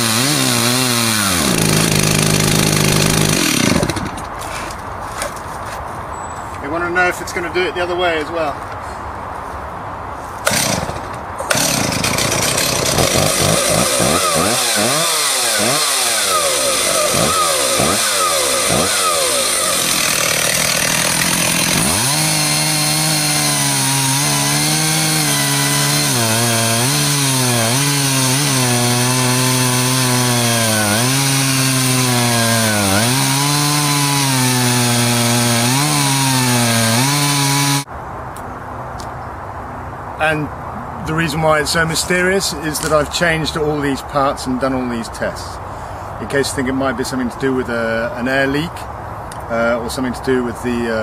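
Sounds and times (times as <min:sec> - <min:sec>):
chainsaw cutting wood: 0:00.0 - 0:04.4, 0:10.4 - 0:37.9.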